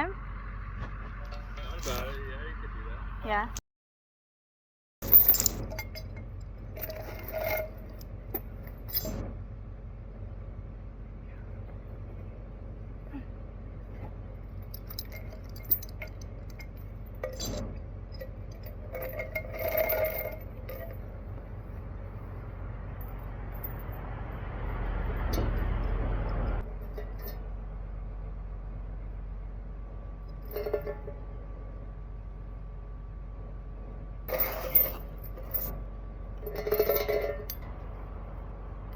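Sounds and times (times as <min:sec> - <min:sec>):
excavator diesel engine running: 0:00.0 - 0:03.5
metallic clinks and scrapes: 0:05.0 - 0:09.2, 0:14.0 - 0:22.4, 0:23.0 - 0:27.4, 0:30.3 - 0:31.2, 0:34.3 - 0:35.8, 0:36.4 - 0:37.8.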